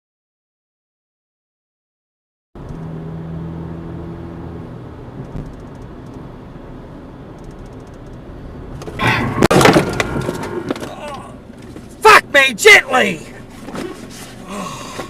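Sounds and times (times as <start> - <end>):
car engine hum and road noise: 2.6 - 15.0
loud car crash: 8.9 - 11.3.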